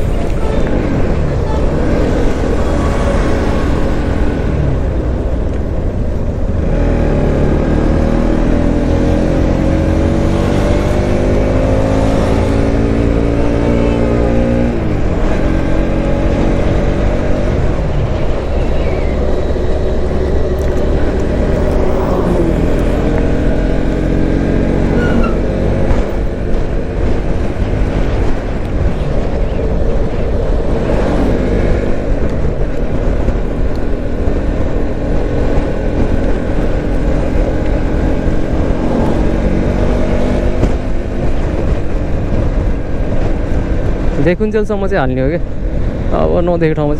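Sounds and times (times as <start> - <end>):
motorcycle engine accelerating: 0.0 - 46.9
wind rush on microphone: 0.0 - 46.9.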